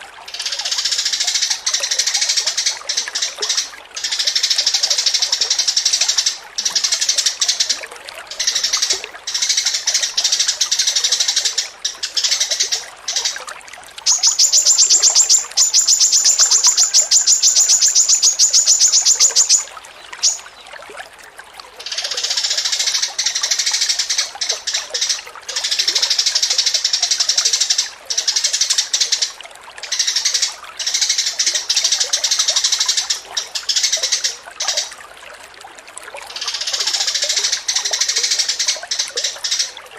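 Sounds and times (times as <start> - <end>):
songbird chattering song: 14.0 - 20.5, 36.4 - 39.8
fast high bird trill: 14.1 - 20.4.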